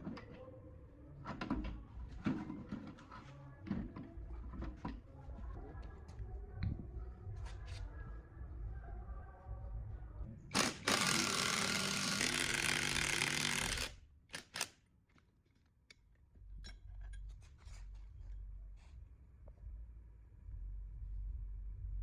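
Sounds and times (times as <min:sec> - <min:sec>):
power tool running: 0:10.6 - 0:14.7.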